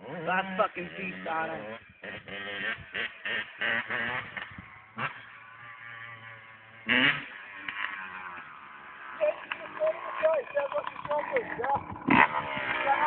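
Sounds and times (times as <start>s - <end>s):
two-stroke dirt bike engine revving: 0.0s - 13.0s.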